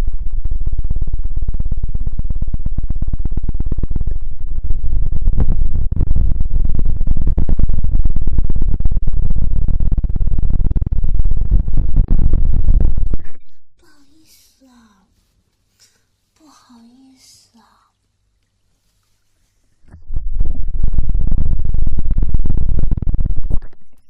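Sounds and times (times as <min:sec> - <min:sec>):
dense crackling and rumbling: 0:00.0 - 0:14.6, 0:19.8 - 0:24.0.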